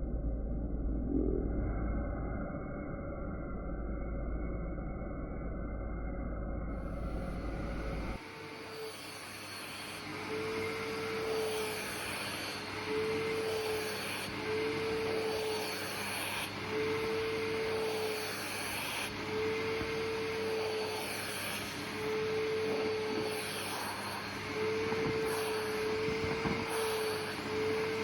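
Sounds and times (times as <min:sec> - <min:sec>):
vacuum cleaner running: 0:06.7 - 0:28.0.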